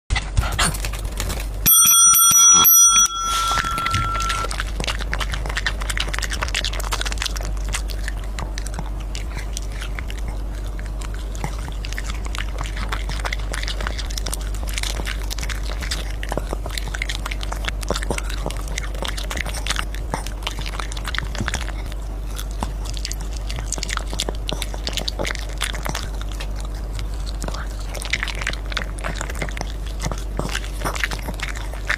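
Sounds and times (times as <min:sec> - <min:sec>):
puppy eating crunchy food: 0:00.1 - 0:31.9
bell-like ringing tone: 0:01.7 - 0:04.5.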